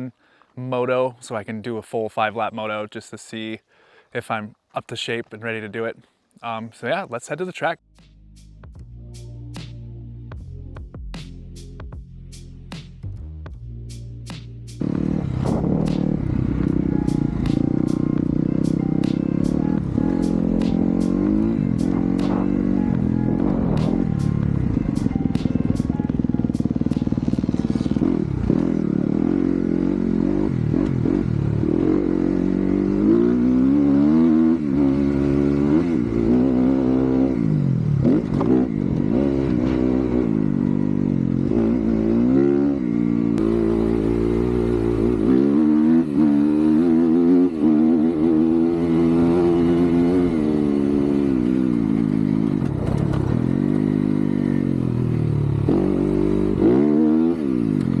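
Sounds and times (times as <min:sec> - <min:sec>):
dirt bike engine revving: 0:14.8 - 0:58.0.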